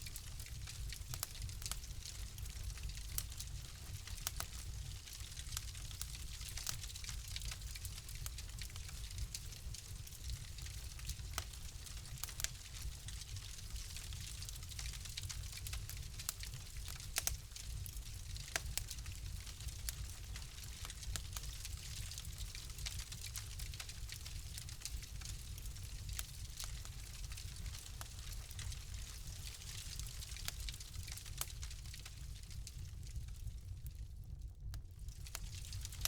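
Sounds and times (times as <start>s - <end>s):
fire crackling and popping: 0.0s - 36.0s
soft hiss and low rumble: 0.0s - 36.0s.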